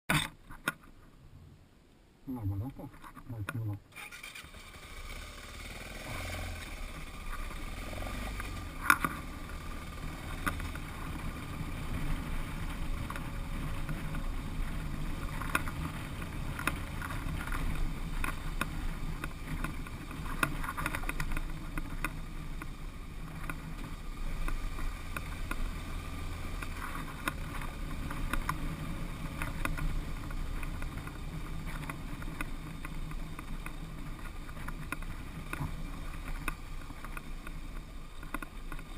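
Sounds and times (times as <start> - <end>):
motorcycle engine running: 3.9 - 38.9
knocks and rattles from riding: 6.2 - 38.9.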